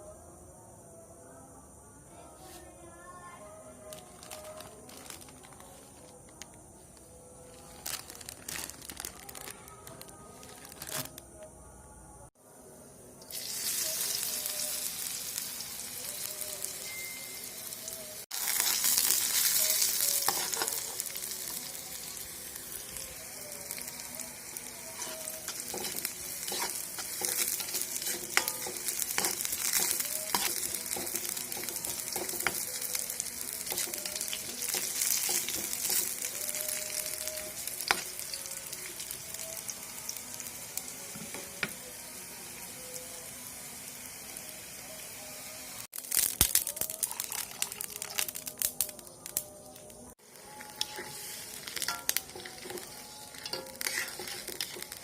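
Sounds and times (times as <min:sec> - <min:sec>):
food sizzling in hot oil: 0:13.2 - 0:55.0
spatula scraping pan: 0:50.8 - 0:55.0.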